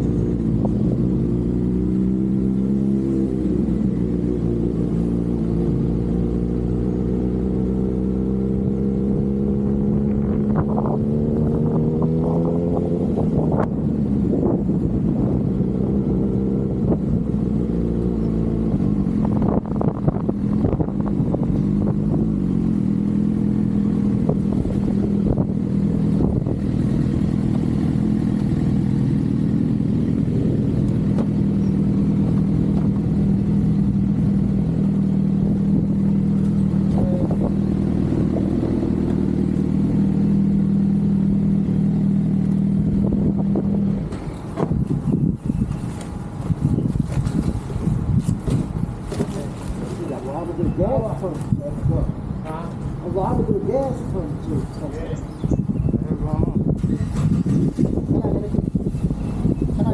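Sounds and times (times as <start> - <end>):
motorcycle engine accelerating: 0.0 - 52.1, 53.0 - 59.9
gusty wind noise: 9.6 - 17.7, 18.6 - 29.2, 42.7 - 49.2, 53.1 - 59.9.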